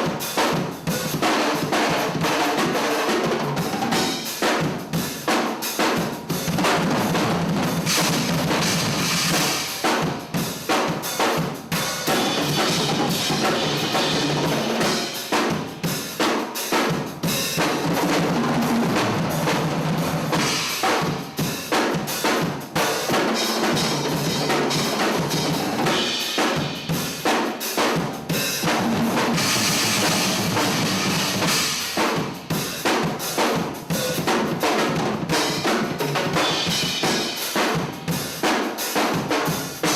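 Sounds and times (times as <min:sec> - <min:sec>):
drum kit groove: 0:00.0 - 0:39.9
loud cymbal wash: 0:07.7 - 0:17.8, 0:18.9 - 0:34.2.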